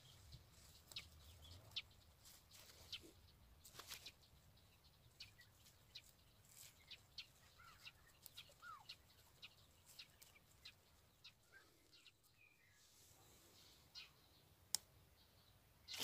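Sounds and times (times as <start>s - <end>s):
faint bird chirps and calls: 0.0s - 16.0s.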